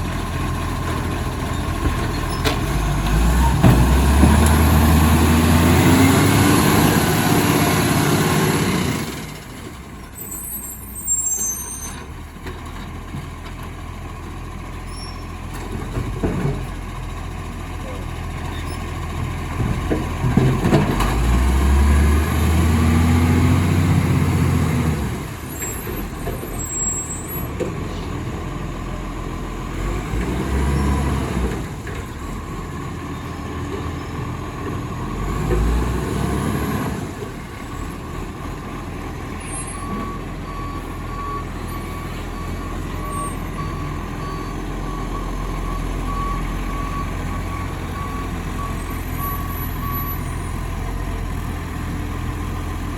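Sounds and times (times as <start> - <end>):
garbage truck engine revving: 0.5 - 9.5, 19.2 - 52.9
reversing alarm beeping: 39.4 - 50.6.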